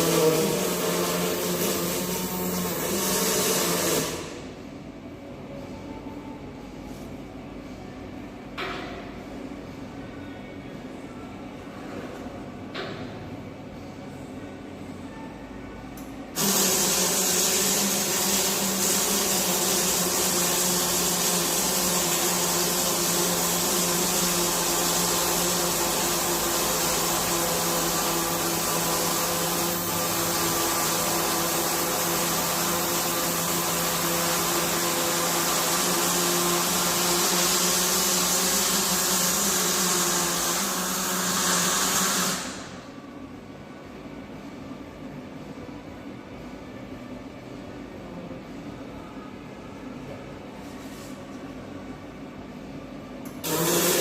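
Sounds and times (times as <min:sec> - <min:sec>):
arc welder hissing: 0:00.0 - 0:04.4, 0:16.4 - 0:42.8.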